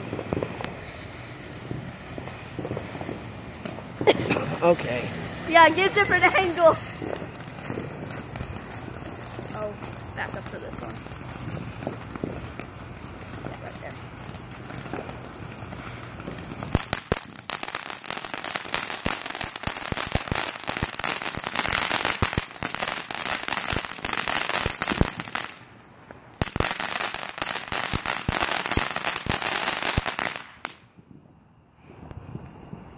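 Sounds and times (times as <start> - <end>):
fireworks crackling: 0.0 - 32.9.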